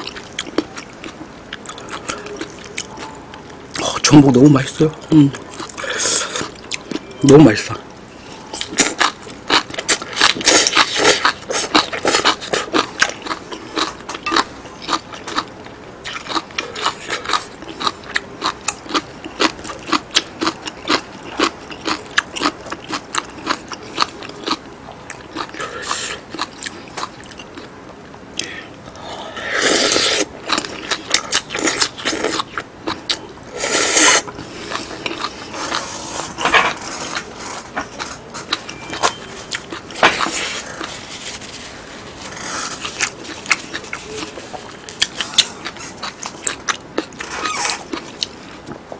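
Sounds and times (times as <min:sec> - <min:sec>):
wet chewing and lip-smacking: 0:42.3 - 0:48.8.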